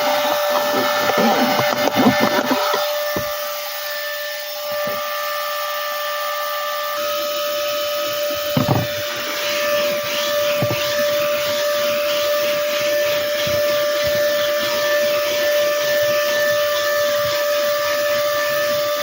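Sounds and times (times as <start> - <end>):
handheld vacuum whining: 0.0 - 19.0
short knocks: 8.6 - 9.0, 10.6 - 11.0.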